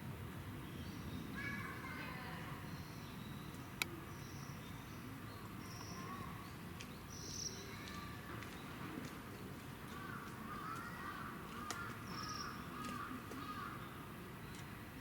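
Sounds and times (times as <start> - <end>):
faint high bird chirps: 2.6 - 8.8.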